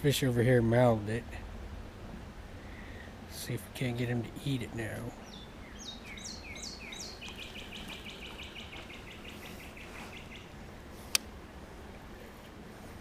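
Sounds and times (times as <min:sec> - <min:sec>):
songbird singing: 0:02.6 - 0:11.2.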